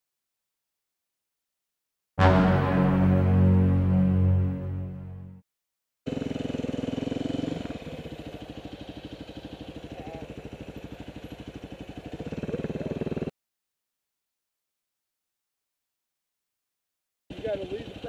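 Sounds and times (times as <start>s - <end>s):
motorcycle engine running: 6.1s - 13.3s, 17.3s - 18.0s.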